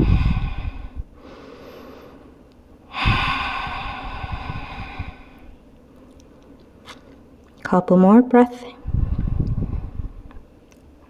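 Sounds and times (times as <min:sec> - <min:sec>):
woman breathing deeply: 0:00.0 - 0:05.7.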